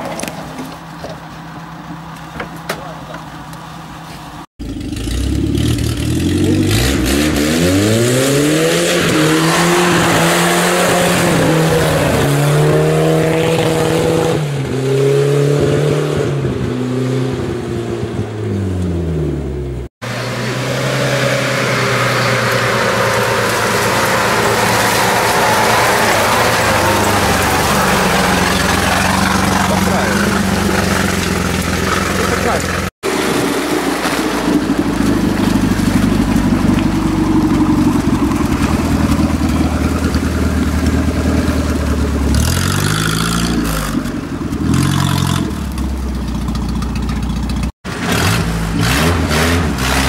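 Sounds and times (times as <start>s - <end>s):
off-road vehicle engine revving: 4.6s - 50.0s
wheels spinning in wet leaves: 20.1s - 48.2s.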